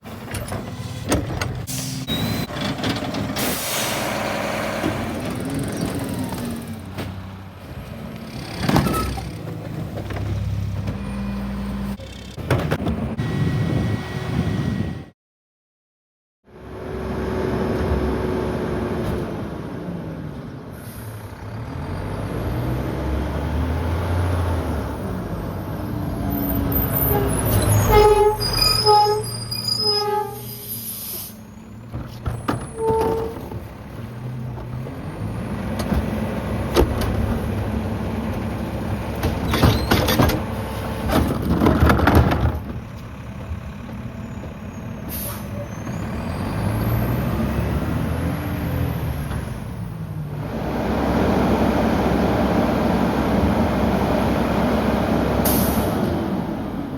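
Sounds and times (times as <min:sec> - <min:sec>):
clanks and crunching of compacting: 0:00.1 - 0:03.6, 0:31.8 - 0:44.7
garbage truck diesel engine revving: 0:01.6 - 0:12.5, 0:16.6 - 0:29.0, 0:33.6 - 0:42.0, 0:42.8 - 0:56.9.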